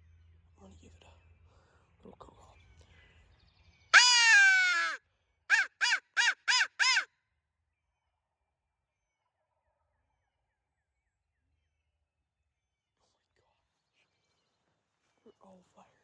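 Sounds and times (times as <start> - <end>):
crow call caws: 4.0 - 7.1.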